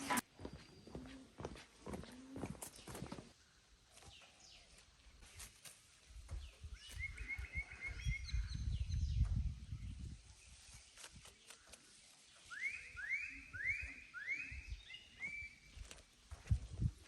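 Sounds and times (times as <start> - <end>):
soft footsteps: 0.0 - 7.2, 15.7 - 17.0
small bird chirping: 3.9 - 16.8.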